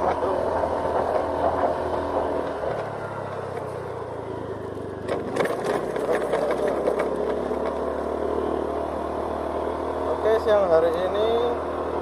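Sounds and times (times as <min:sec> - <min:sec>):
scooter engine running: 0:00.0 - 0:12.0
rough clattery noise: 0:05.0 - 0:07.8.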